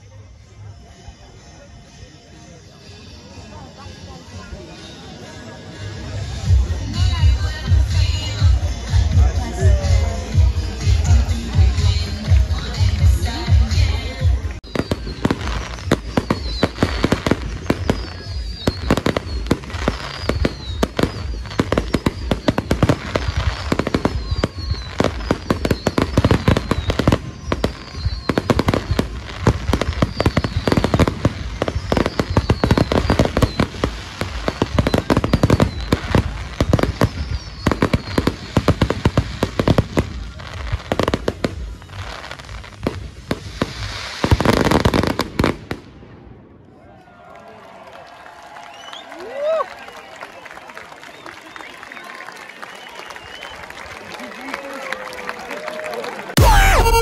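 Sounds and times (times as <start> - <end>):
fireworks bangs and crackles: 6.3 - 46.7, 56.3 - 57.0.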